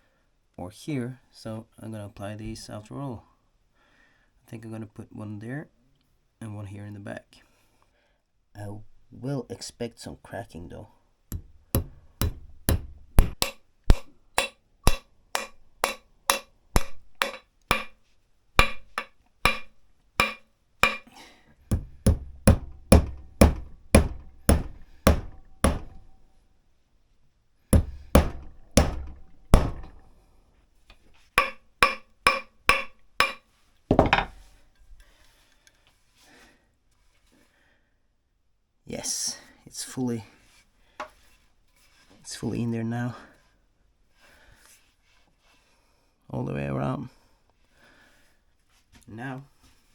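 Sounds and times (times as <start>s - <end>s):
hammer striking wedges: 11.3s - 18.0s, 18.6s - 26.3s, 27.8s - 30.2s, 31.4s - 34.4s.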